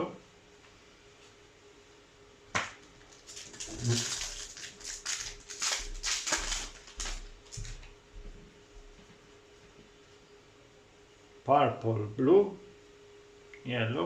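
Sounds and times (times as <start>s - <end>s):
paper and foil rustling: 2.8s - 7.9s.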